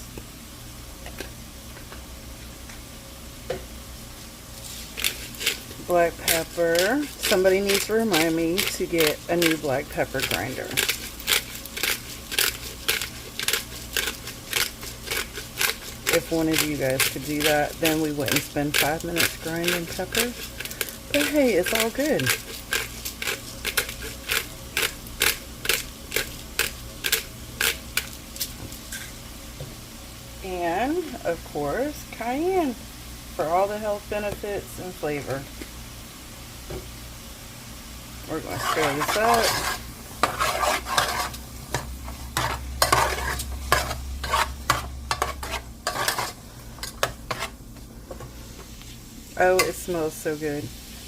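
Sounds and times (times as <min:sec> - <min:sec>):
vegetables sizzling: 0:00.0 - 0:51.0
spoon scraping a pan: 0:04.6 - 0:28.1, 0:28.9 - 0:29.2, 0:38.3 - 0:48.2.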